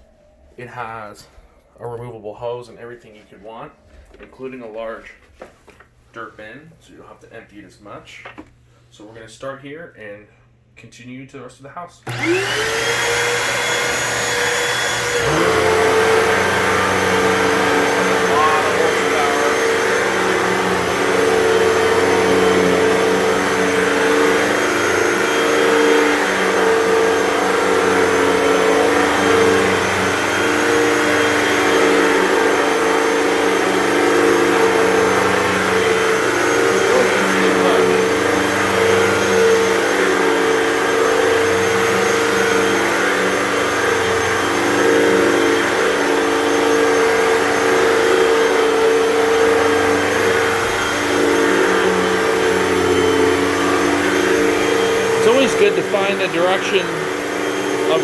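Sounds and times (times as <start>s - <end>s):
vacuum cleaner on carpet: 12.1s - 58.0s.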